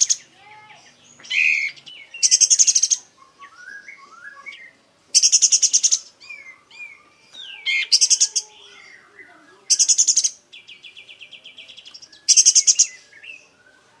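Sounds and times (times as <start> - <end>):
songbird singing: 0.0 - 14.0
bird chattering notes: 1.2 - 3.5, 5.2 - 11.1, 11.8 - 13.0.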